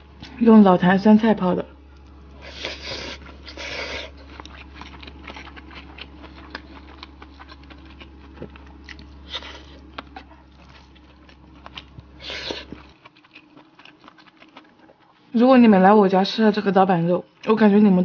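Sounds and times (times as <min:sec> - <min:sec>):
close chewing: 0:01.9 - 0:15.4.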